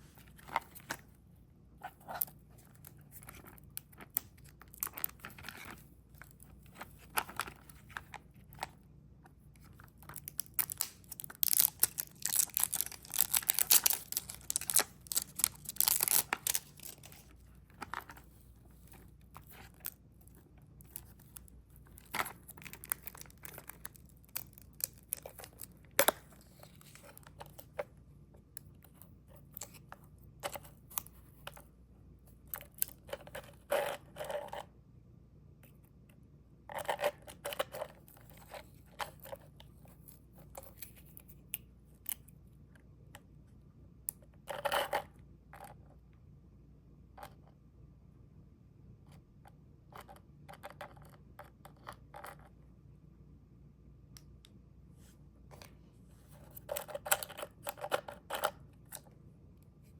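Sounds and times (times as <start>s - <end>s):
candy wrapper tearing and crinkling: 10.1s - 17.2s, 22.0s - 26.2s.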